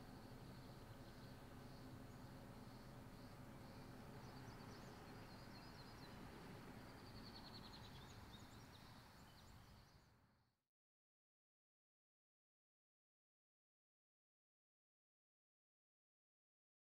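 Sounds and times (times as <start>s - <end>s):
distant small birds chirping: 0.0s - 10.2s.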